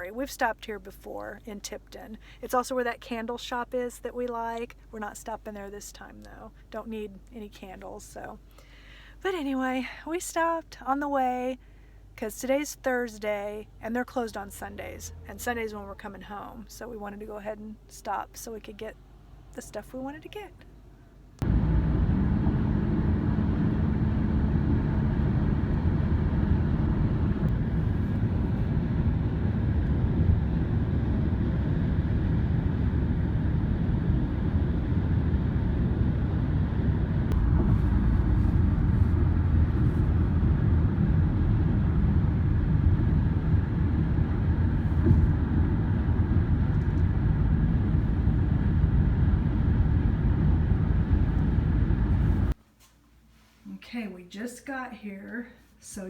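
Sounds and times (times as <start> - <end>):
faint steady hum: 0.0 - 56.0
car road and engine rumble: 21.4 - 52.6.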